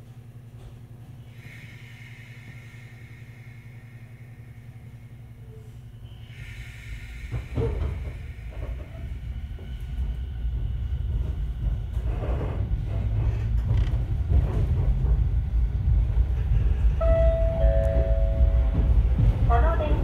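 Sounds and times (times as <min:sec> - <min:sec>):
electric railcar hum: 0:00.0 - 0:20.0
wheels clattering on rail: 0:07.2 - 0:20.0.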